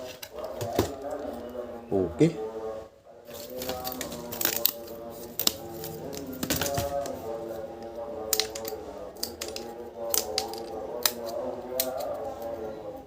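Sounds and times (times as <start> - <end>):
puzzle pieces clicking: 8.3 - 12.0.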